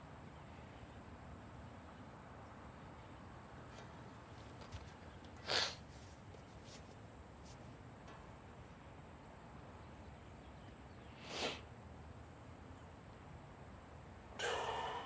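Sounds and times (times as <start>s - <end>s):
person breathing: 14.4s - 15.0s.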